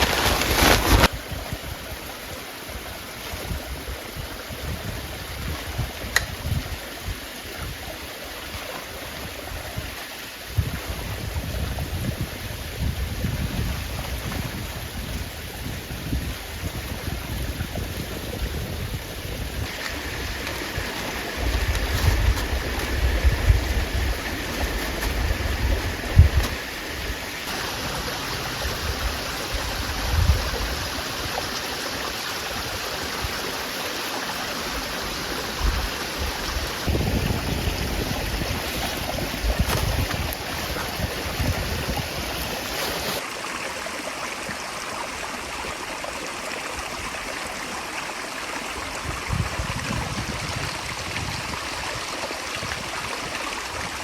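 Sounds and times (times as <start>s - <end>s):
wind gusts buffeting microphone: 2.8s - 8.6s, 9.2s - 31.6s, 34.8s - 43.2s, 49.0s - 54.0s
steady rushing outdoor noise: 10.0s - 43.3s.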